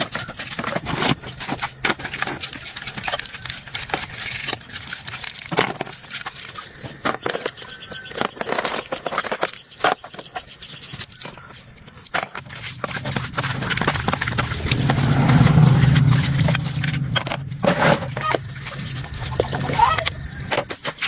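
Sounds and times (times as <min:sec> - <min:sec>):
low hum: 0:12.4 - 0:20.4.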